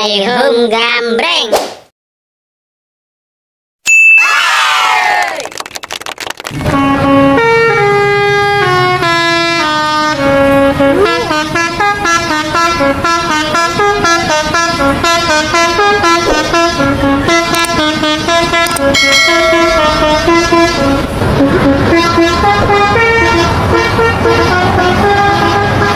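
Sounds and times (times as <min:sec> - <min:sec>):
multi-tone horn melody: 0:06.6 - 0:25.9.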